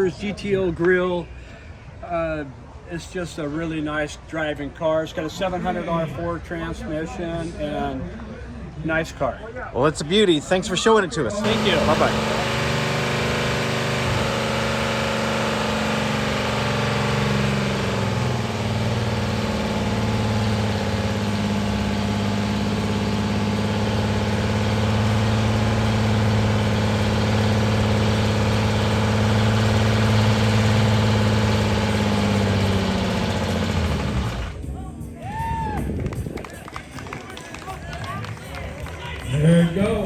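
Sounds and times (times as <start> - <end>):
car engine idling: 11.4 - 34.7.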